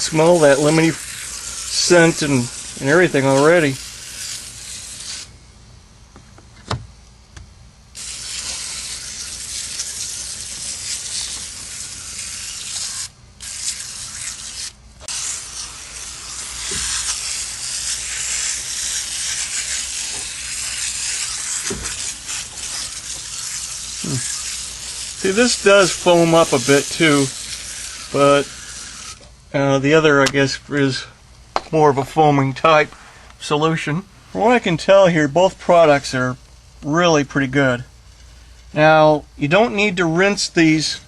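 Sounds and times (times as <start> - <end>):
aerosol can spraying: 0.0 - 5.3, 8.0 - 29.2.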